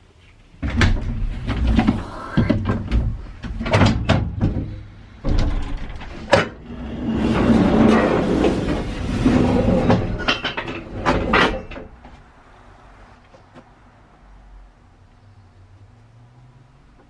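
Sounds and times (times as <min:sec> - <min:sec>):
clunks and knocks of parts: 0:00.6 - 0:12.3.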